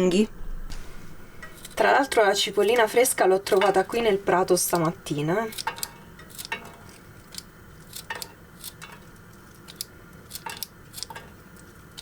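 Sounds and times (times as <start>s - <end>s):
utensils clinking on frying pan: 1.4s - 7.0s, 8.0s - 9.1s.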